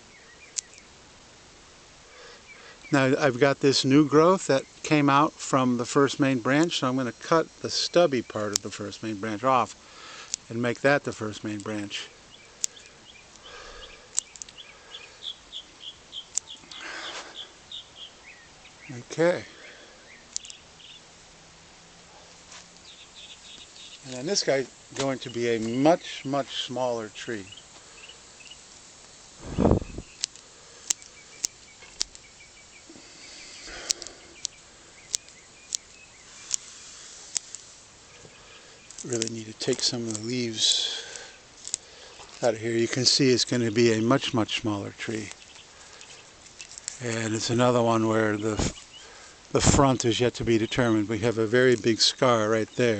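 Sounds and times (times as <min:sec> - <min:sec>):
bird chirping: 0:00.0 - 0:01.0, 0:02.1 - 0:05.3, 0:07.6 - 0:21.2, 0:22.1 - 0:28.7, 0:29.4 - 0:52.9
pruning shears snipping: 0:08.3 - 0:08.8, 0:12.6 - 0:13.5, 0:20.3 - 0:20.6, 0:29.9 - 0:32.3, 0:33.6 - 0:42.5
scissors snipping: 0:30.2 - 0:32.2, 0:33.7 - 0:36.7.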